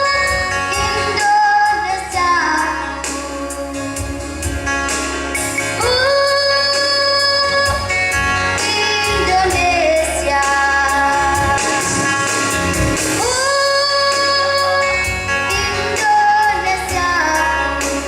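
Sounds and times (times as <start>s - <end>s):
music with steady low beat: 11.1s - 13.4s.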